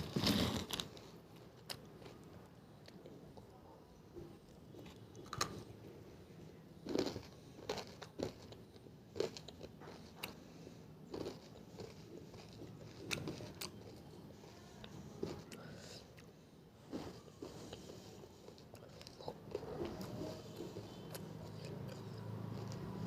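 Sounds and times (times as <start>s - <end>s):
person crunching hard food: 0.0s - 2.2s, 6.8s - 10.4s, 11.1s - 14.1s, 16.9s - 23.0s.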